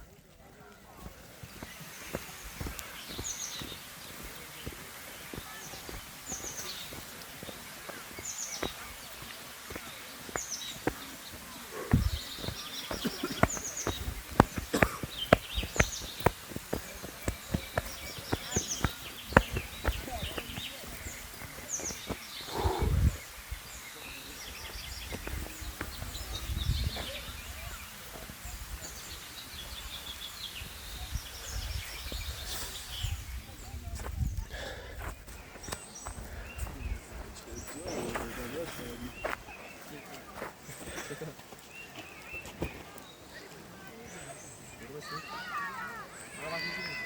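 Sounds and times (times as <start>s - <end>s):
bird chirping: 1.4s - 33.7s.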